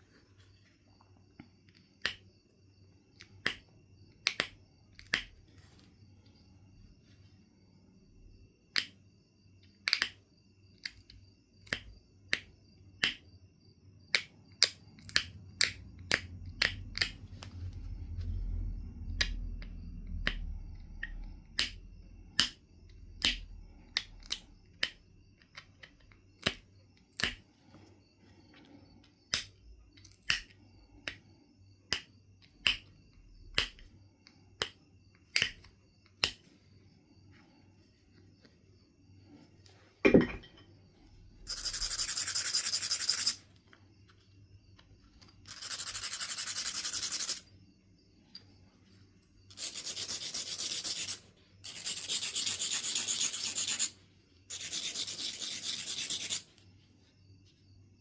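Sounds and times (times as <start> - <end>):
flint knapping clicks and snaps: 4.2 - 5.4, 9.8 - 10.2, 14.1 - 17.2, 23.2 - 26.6, 27.2 - 27.4, 29.3 - 31.2, 31.9 - 32.9, 34.6 - 36.5.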